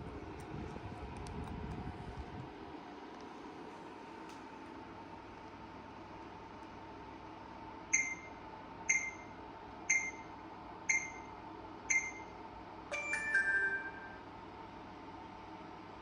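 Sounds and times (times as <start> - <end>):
fan whooshing and humming: 0.0 - 16.0
brief electronic chime: 12.9 - 14.3.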